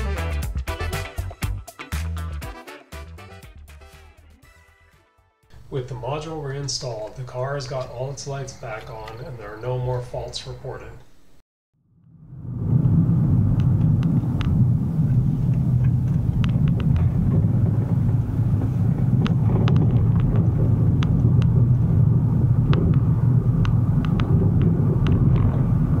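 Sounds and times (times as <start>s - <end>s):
vehicle engine low rumble: 5.5s - 26.0s.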